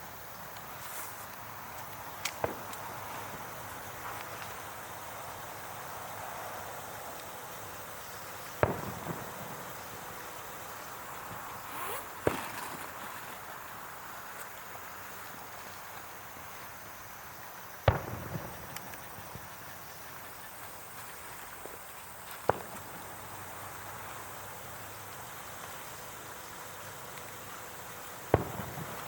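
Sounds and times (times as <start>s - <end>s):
background hiss: 0.0s - 29.0s
fireworks bangs: 2.1s - 5.9s, 7.1s - 13.8s, 17.8s - 24.5s, 27.7s - 29.0s.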